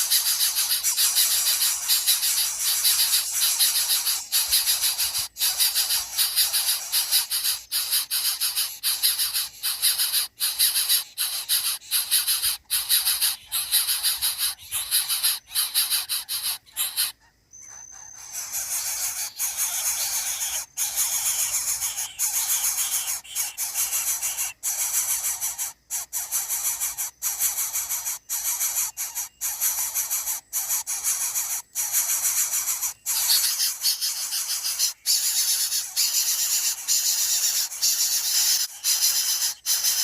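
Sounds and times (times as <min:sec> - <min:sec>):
insect chorus hiss: 0:00.0 - 0:40.0.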